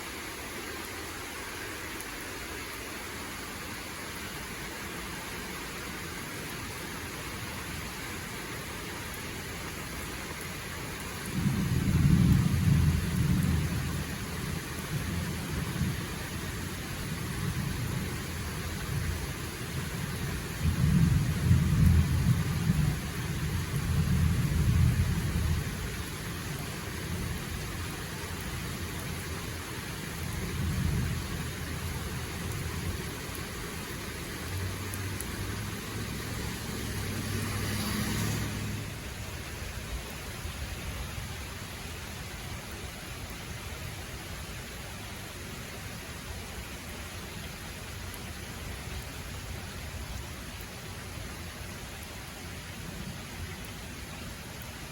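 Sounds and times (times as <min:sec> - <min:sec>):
steady rainfall: 0:00.0 - 0:54.9
thunder rumbling: 0:11.2 - 0:19.2, 0:19.8 - 0:27.7.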